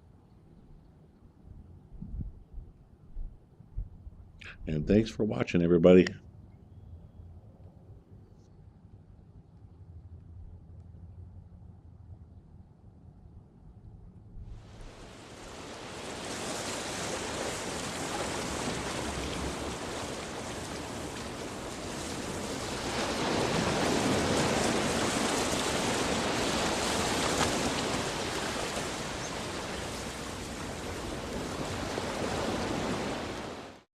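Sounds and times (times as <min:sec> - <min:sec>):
steady rushing noise: 0:14.4 - 0:33.8.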